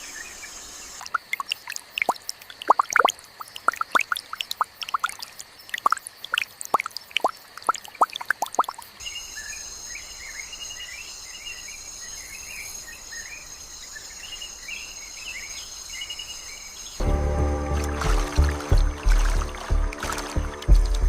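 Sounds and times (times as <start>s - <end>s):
insects trilling: 0.0s - 17.0s
dripping plinks: 1.0s - 8.9s, 17.0s - 21.0s
music: 17.0s - 21.0s.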